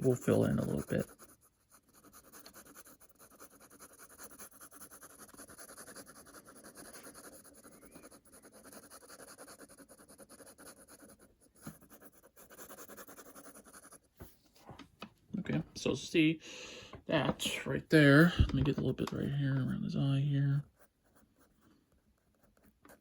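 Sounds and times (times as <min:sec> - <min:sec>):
pen scratching on paper: 0:00.0 - 0:14.4, 0:20.6 - 0:23.0.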